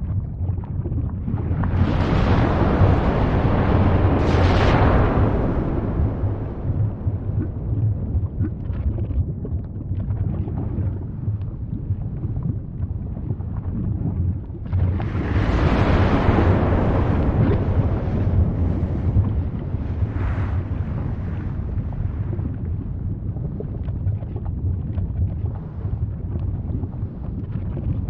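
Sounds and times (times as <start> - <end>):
deep volcanic rumble: 0.0 - 28.0
rushing volcanic blast: 1.2 - 8.7, 14.7 - 23.3.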